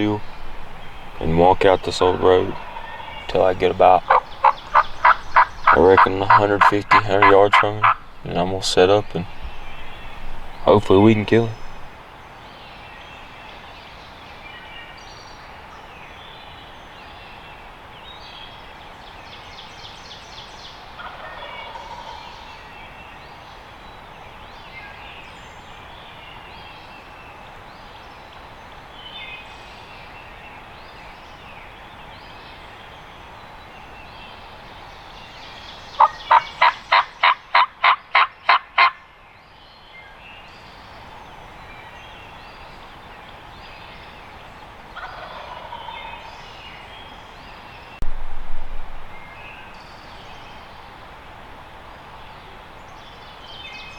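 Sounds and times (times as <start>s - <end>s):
turkey yelping: 2.0s - 3.3s, 3.9s - 8.1s, 21.0s - 22.2s, 36.0s - 39.0s, 45.0s - 46.3s.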